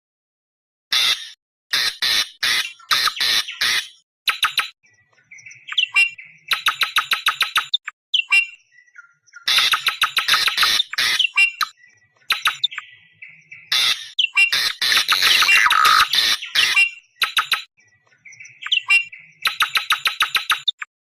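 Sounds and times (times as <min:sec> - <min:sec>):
thin whistled bird notes: 0:02.7 - 0:20.9
bird screaming chatter: 0:09.5 - 0:11.7, 0:13.7 - 0:17.6.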